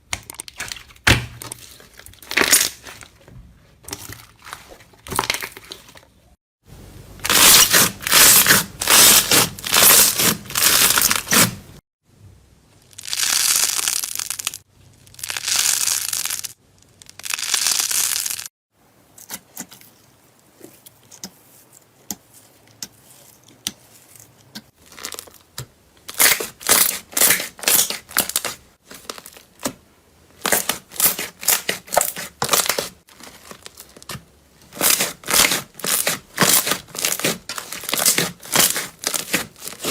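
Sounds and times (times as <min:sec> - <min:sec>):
crunchy material crunching: 0:07.2 - 0:11.6, 0:12.9 - 0:18.5, 0:24.0 - 0:25.5, 0:34.7 - 0:39.9.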